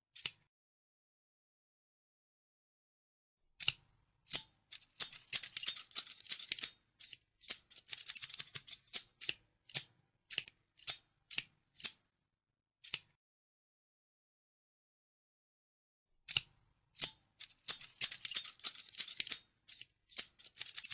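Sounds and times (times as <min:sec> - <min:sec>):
scissors snipping: 0:00.1 - 0:00.4, 0:03.6 - 0:12.0, 0:12.8 - 0:13.1, 0:16.3 - 0:20.9.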